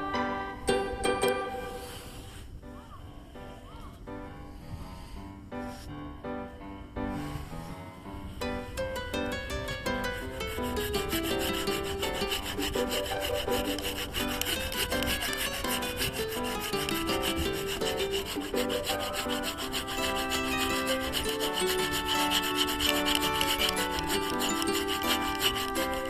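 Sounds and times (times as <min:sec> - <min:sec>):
background music: 0:00.0 - 0:03.0, 0:08.2 - 0:26.0
hand saw cutting wood: 0:09.6 - 0:26.0.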